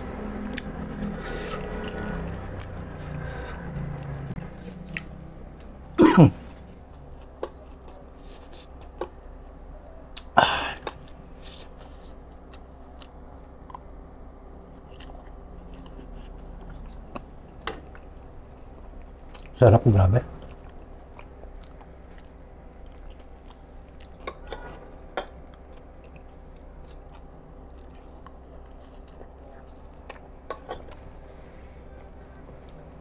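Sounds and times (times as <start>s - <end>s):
close chewing: 0.0s - 9.2s, 14.6s - 19.6s, 20.4s - 31.2s.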